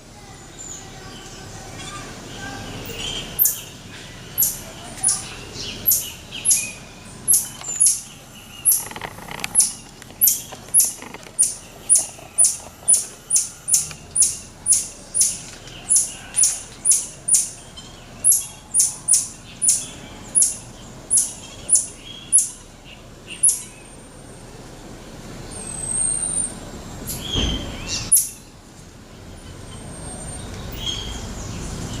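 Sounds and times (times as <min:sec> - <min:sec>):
marmoset high-pitched chirps: 0:03.0 - 0:03.8, 0:04.4 - 0:09.0, 0:09.6 - 0:22.6, 0:23.3 - 0:23.8, 0:27.9 - 0:28.4.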